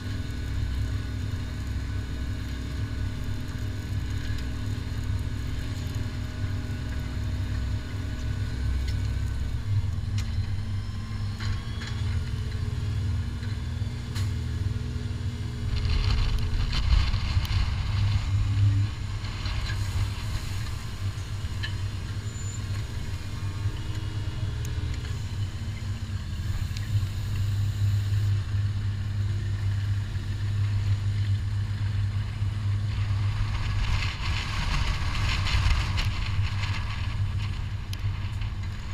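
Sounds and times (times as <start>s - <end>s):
tractor diesel engine under load: 0.0s - 38.9s
rush of noise: 13.8s - 29.6s.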